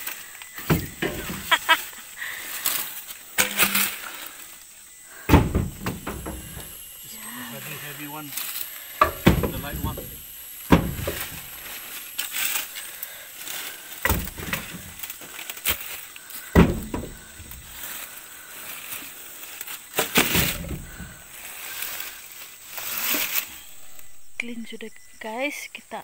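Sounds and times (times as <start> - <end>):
firewood logs knocking: 0.6 - 1.8, 5.2 - 6.9, 8.9 - 11.8, 14.0 - 17.8, 19.9 - 21.4.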